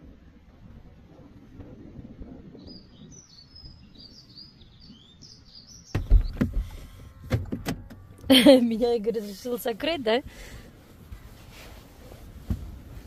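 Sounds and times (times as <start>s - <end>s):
low wind rumble: 0.0s - 13.0s
songbird chirping: 2.5s - 6.8s
loud knocks and thumps: 5.9s - 7.9s.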